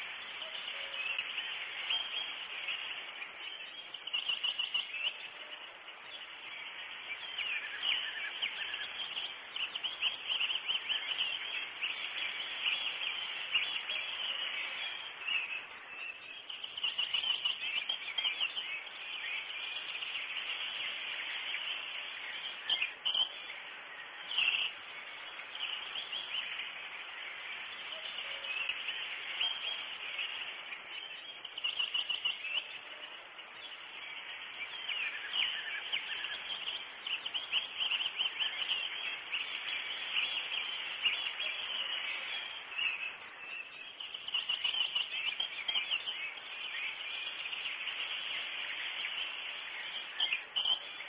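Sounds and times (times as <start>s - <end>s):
birds chirping and twittering: 0.0s - 51.0s.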